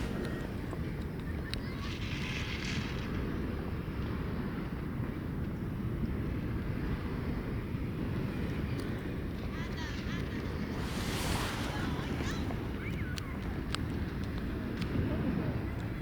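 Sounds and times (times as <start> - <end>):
harsh wind hiss: 0.0 - 1.1, 10.4 - 13.6
wind buffeting microphone: 0.0 - 1.2, 10.4 - 14.0.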